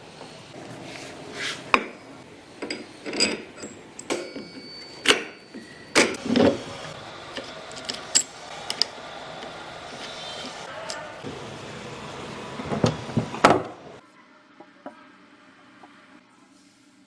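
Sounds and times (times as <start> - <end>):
tools and parts knocking and scraping: 1.6 - 10.3.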